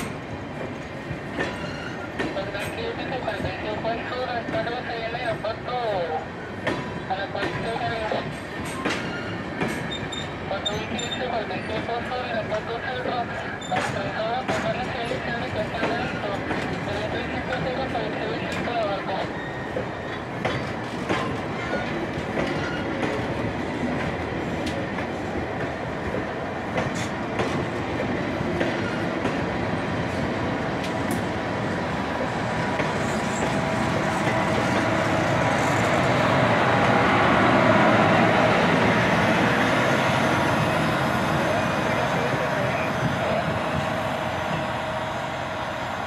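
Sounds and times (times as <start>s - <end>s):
train wheels clicking: 0.0s - 3.5s, 6.6s - 17.7s, 18.4s - 30.2s, 30.8s - 39.6s
train rumble: 0.0s - 46.0s.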